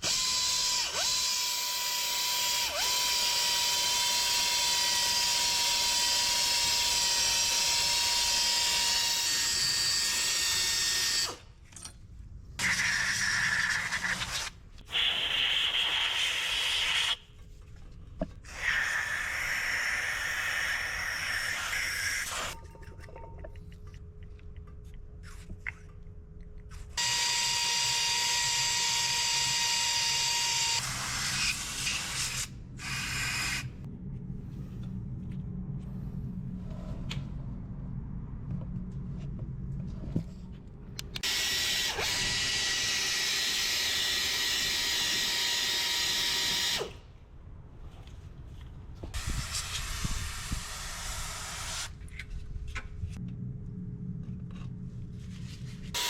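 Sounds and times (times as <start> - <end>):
electric drill whining: 0.0 - 11.4, 27.0 - 30.9, 41.2 - 47.0.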